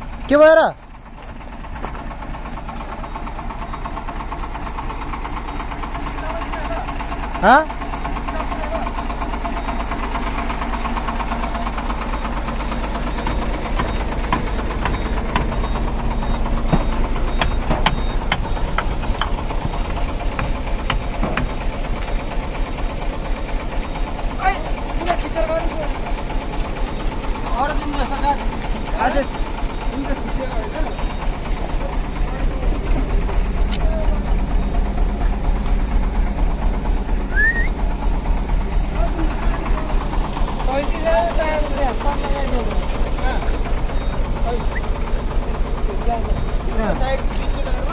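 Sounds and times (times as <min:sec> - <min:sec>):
diesel truck engine running: 0:00.0 - 0:47.9
metal knocks and clanks: 0:13.0 - 0:22.2
short rising chirp: 0:37.3 - 0:37.8.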